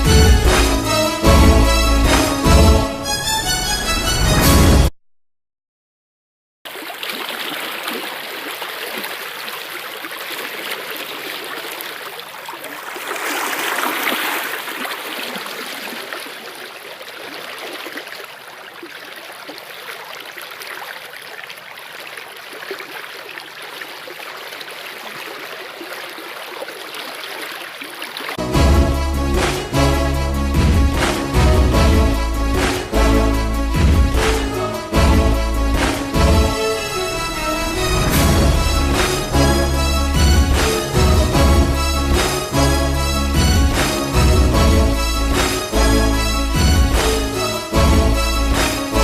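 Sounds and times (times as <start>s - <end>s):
stream running: 6.7s - 49.0s.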